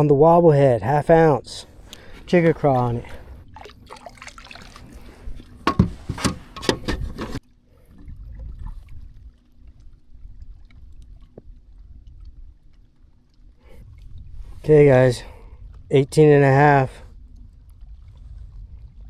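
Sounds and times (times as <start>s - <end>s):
knocks and clatters on kayak: 1.6s - 7.4s.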